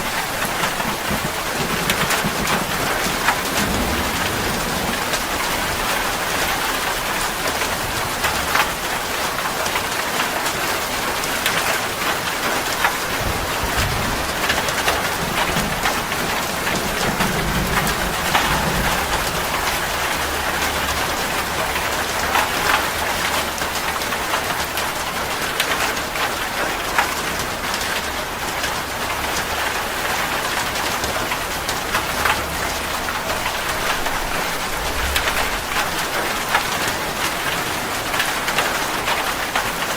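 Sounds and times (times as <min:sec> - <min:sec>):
low rumble of thunder: 0:00.0 - 0:09.3, 0:12.4 - 0:23.4, 0:30.6 - 0:38.6
rain drops pattering: 0:00.0 - 0:39.9.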